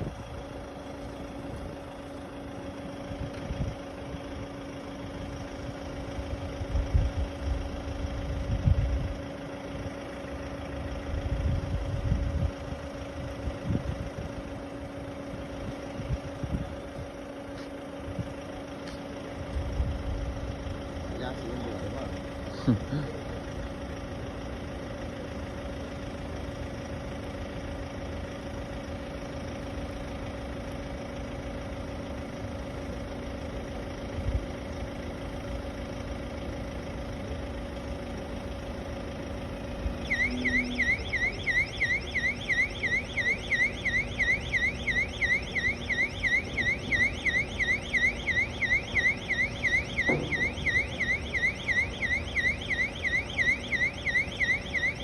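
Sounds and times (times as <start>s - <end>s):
motor hum: 0.0s - 55.0s
warbling warning alarm: 37.6s - 55.0s.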